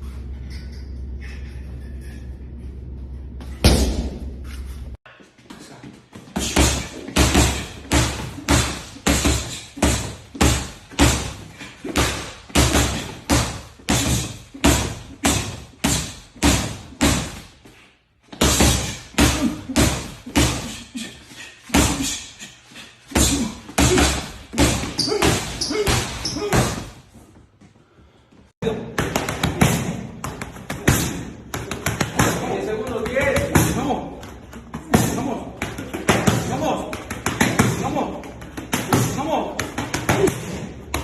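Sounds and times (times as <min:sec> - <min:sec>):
punches landing: 0:06.3 - 0:17.6, 0:23.1 - 0:27.0.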